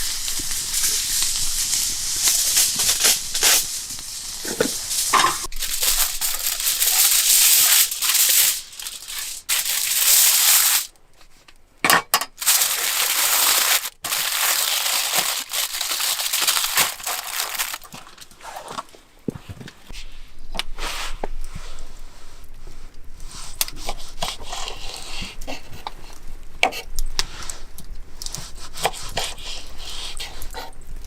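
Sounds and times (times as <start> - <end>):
food sizzling over campfire: 0.0 - 10.9, 12.4 - 17.9.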